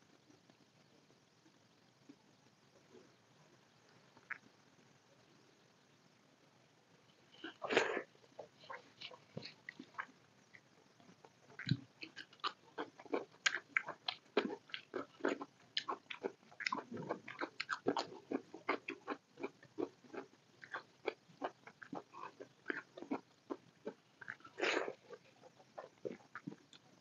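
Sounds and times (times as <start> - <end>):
wet chewing and mouth clicks: 8.7 - 27.0.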